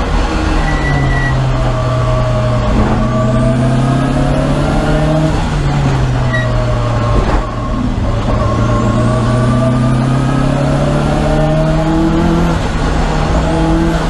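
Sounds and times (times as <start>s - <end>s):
race car engine: 0.0s - 14.0s
faint high whistle: 0.6s - 1.4s.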